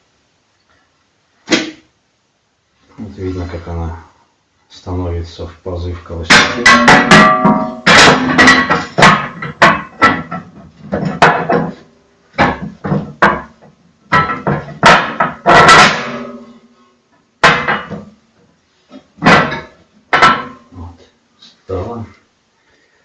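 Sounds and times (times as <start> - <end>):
cast iron parts clanking: 6.2 - 16.7, 17.4 - 18.2, 18.9 - 20.7.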